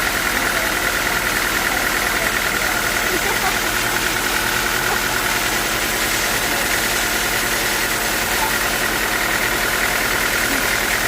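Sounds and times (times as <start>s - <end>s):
sawmill engine drone: 0.0s - 11.0s
machine whine: 2.9s - 11.0s.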